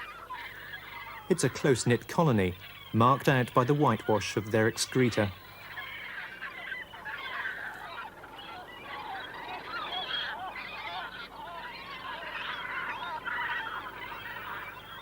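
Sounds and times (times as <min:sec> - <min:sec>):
seabird colony squawking: 0:00.0 - 0:15.0.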